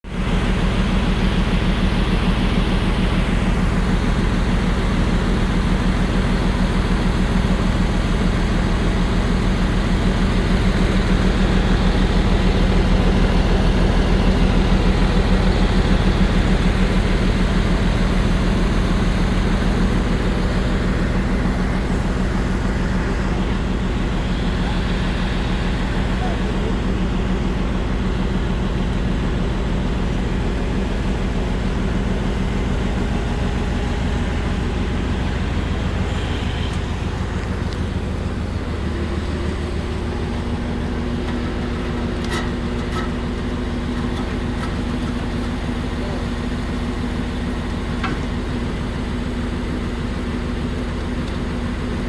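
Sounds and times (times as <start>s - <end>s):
heavy machine drone: 0.1s - 52.0s.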